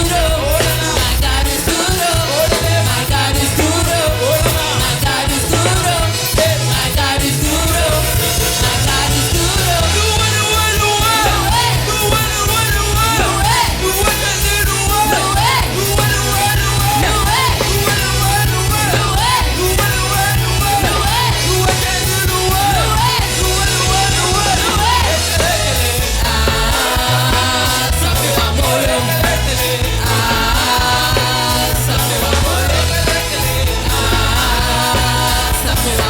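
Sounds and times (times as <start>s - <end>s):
heavy bass: 0.0s - 36.0s
worship band music: 0.0s - 36.0s.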